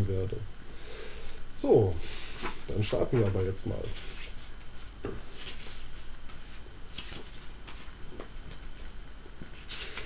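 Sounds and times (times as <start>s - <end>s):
soft rustles and handling noises: 2.0s - 10.0s.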